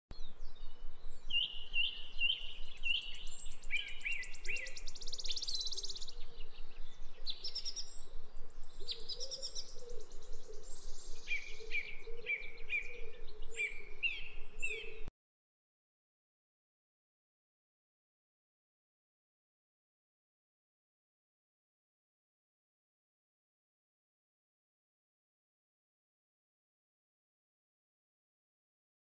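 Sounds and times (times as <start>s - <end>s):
songbirds chirping and trilling: 0.2s - 15.1s.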